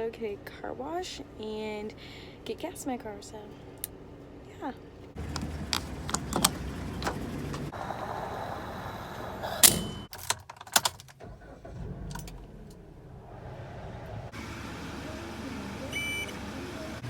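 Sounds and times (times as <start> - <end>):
low steady rumble: 0.0 - 10.1, 11.0 - 16.9
clicks and knocks in a car: 5.2 - 7.7.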